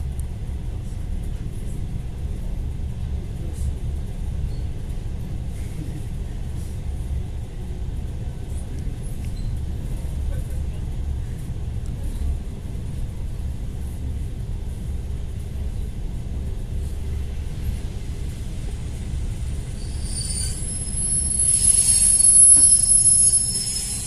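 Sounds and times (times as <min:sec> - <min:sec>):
train running rumble: 0:00.0 - 0:24.0
high-pitched wheel squeal: 0:19.6 - 0:24.0.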